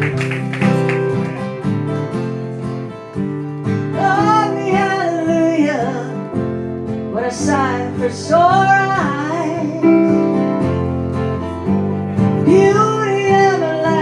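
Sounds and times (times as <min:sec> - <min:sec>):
strummed acoustic guitar: 0:00.0 - 0:14.0
woman singing a ballad: 0:03.9 - 0:06.4, 0:07.1 - 0:10.6, 0:12.4 - 0:14.0.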